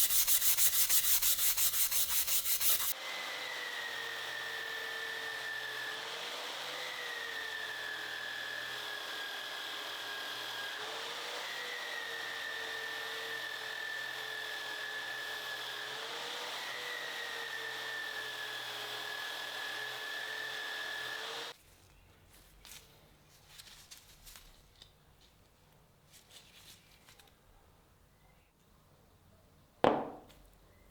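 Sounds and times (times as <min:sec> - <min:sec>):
power tool motor whining: 0:00.0 - 0:21.5
faint handling sounds: 0:21.6 - 0:27.8.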